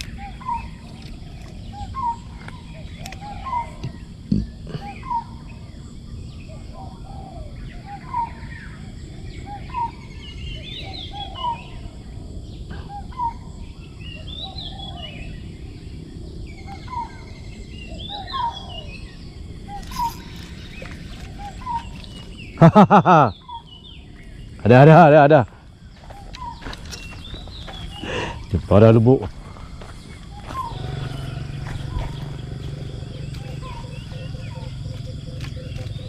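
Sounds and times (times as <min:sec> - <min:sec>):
bird higher rising call: 0:19.7 - 0:22.7, 0:30.1 - 0:36.0.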